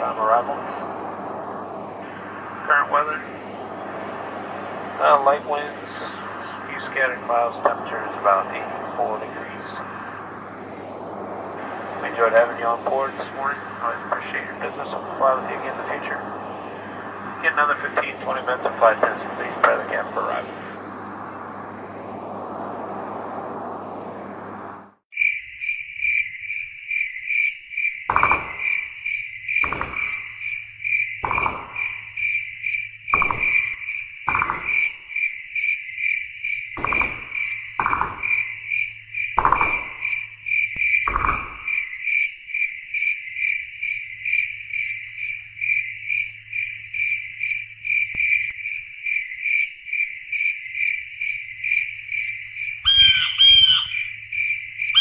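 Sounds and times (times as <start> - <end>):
lower repeating call: 0.0 - 24.8, 52.8 - 54.2
airliner cabin drone: 0.0 - 25.1, 52.2 - 55.0
crickets chirping: 0.0 - 55.0.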